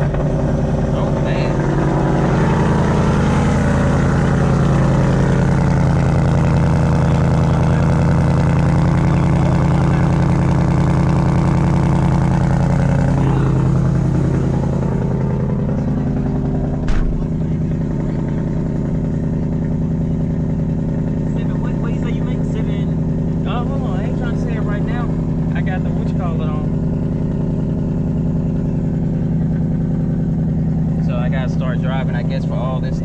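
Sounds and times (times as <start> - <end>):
car engine idling with deep exhaust: 0.0 - 33.0
sharp click: 16.9 - 17.4.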